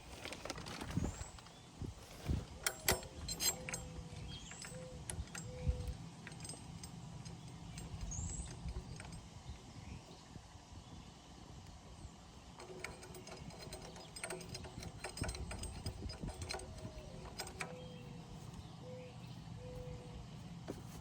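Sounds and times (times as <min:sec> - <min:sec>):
steady low hum: 0:01.3 - 0:21.0
metal tools clinking: 0:02.1 - 0:09.3, 0:12.6 - 0:18.2.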